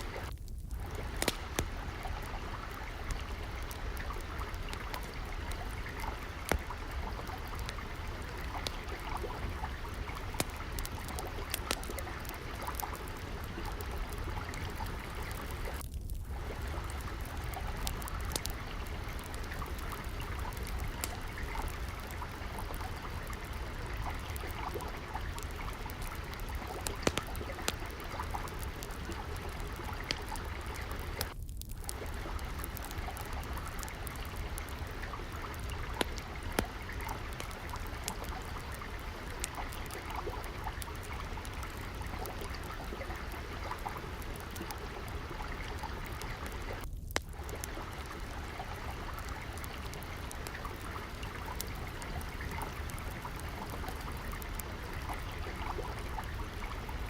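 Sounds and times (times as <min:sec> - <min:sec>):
water trickling: 0:00.0 - 0:57.0
wood fire crackling and popping: 0:00.0 - 0:57.0.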